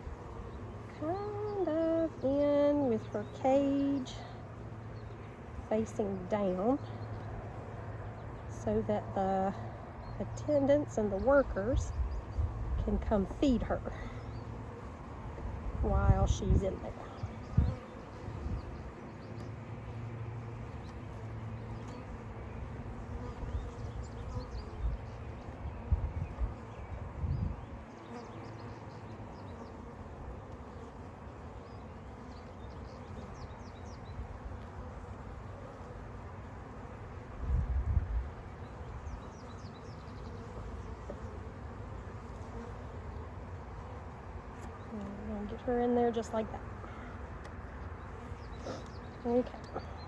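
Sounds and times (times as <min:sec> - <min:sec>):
bees buzzing: 0:00.0 - 0:50.0.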